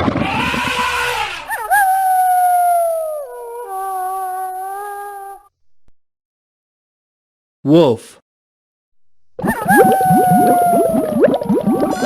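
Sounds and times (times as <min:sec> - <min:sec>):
horse whinnying: 0:00.0 - 0:01.5.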